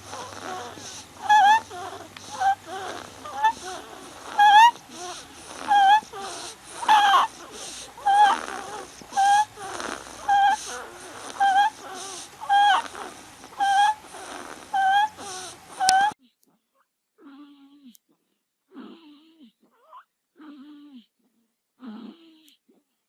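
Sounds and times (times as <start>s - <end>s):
wheezy baby breathing: 0.0s - 16.2s
baby squealing: 0.5s - 3.7s, 5.6s - 6.2s, 6.8s - 7.3s, 8.0s - 9.7s, 11.4s - 13.0s, 13.6s - 14.0s, 14.7s - 16.2s.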